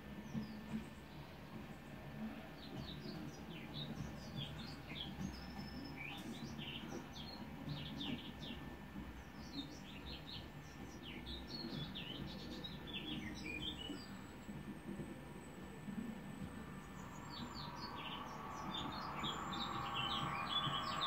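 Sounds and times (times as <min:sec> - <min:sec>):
birds chirping and twittering: 0:02.4 - 0:14.5, 0:15.5 - 0:21.0
steady low rumble: 0:14.6 - 0:21.0.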